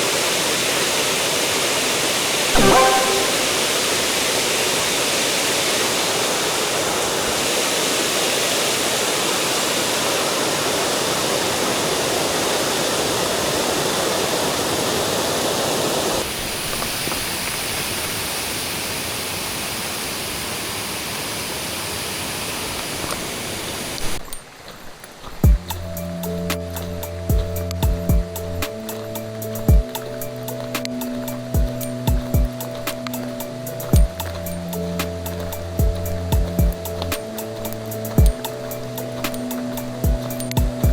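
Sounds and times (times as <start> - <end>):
stream water rushing over rocks: 0.0 - 19.2.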